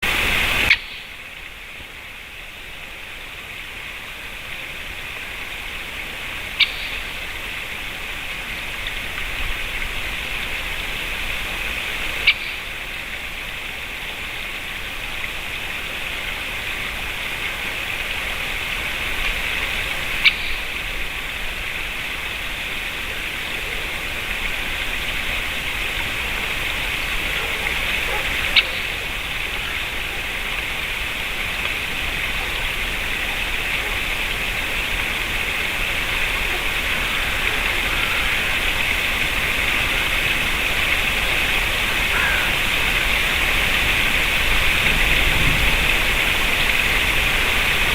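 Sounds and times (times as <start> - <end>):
steady hiss: 0.0 - 47.9
woodpecker calls: 0.7 - 1.2, 6.6 - 7.2, 12.2 - 12.8, 20.2 - 20.7, 42.1 - 43.1.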